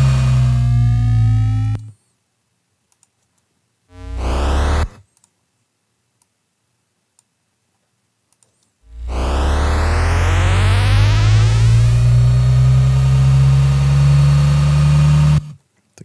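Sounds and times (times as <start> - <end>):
low droning synth tone: 0.0 - 1.9, 4.0 - 4.9, 8.9 - 15.5
sweep of rising synth tones: 0.0 - 1.9, 3.9 - 5.0, 8.9 - 15.5
faint clicks: 2.9 - 3.5, 4.8 - 5.4, 8.3 - 8.8.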